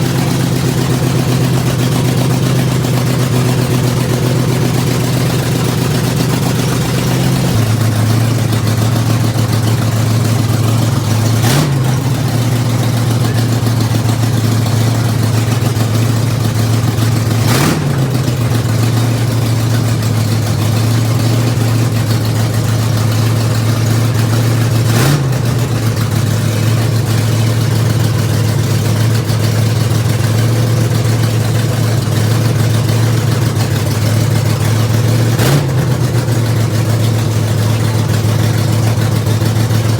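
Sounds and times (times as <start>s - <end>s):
engine running at raised idle: 0.0s - 39.9s
engine revving blips: 11.1s - 12.7s, 17.4s - 18.4s, 24.8s - 25.6s, 35.3s - 36.3s.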